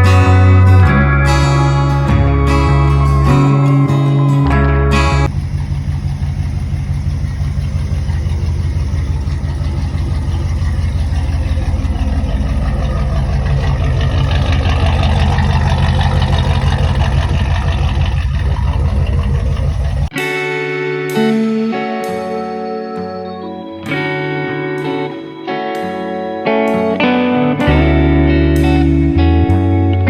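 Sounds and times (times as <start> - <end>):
pickup truck engine running: 5.0 - 20.1.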